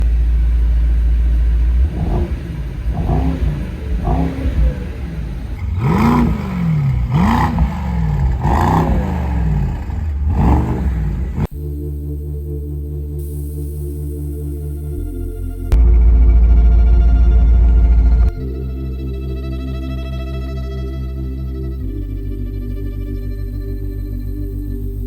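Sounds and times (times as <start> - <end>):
car engine idling and revving: 0.0 - 11.6, 15.7 - 18.5
electronic music: 3.0 - 25.0.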